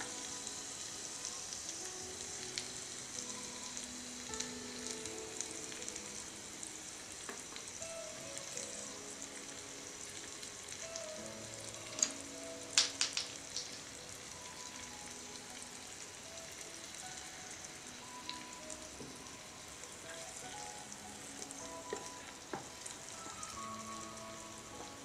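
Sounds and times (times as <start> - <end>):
food sizzling in a frying pan: 0.0 - 25.0.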